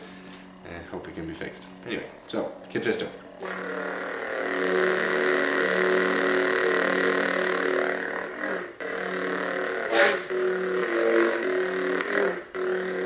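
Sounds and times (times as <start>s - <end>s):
lightsaber electric hum: 0.0s - 13.0s
lightsaber swing: 9.9s - 10.3s.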